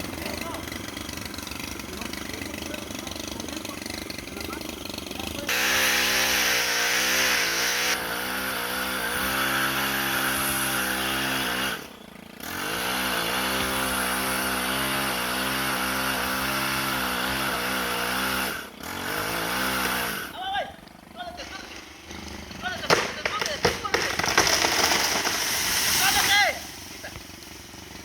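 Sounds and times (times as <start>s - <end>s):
large engine running: 0.0s - 5.8s
hiss: 25.4s - 26.2s.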